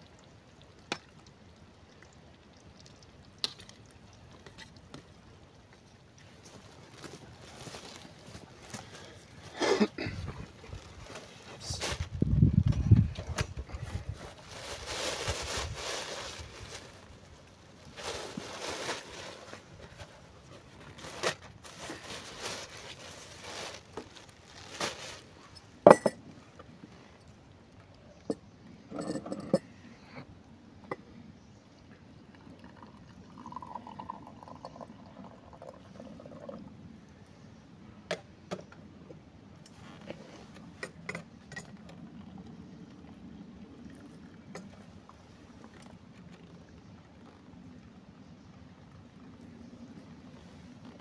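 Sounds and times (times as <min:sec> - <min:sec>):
dishware clinking and knocking: 0:25.9 - 0:26.2
liquid pouring into container: 0:32.3 - 0:36.6.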